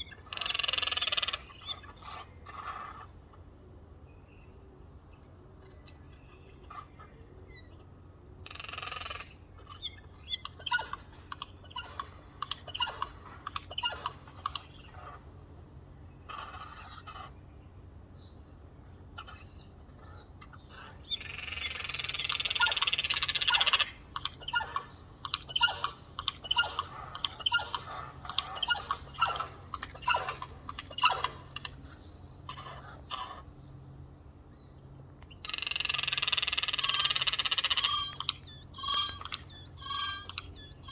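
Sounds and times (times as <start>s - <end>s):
jays calling harshly: 20.4s - 33.5s, 35.3s - 40.9s.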